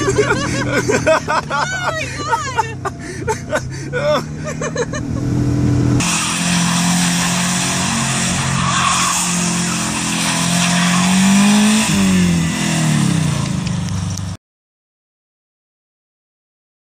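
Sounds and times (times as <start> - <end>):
car engine revving: 0.0 - 14.4
tyres spinning in snow: 6.0 - 14.3.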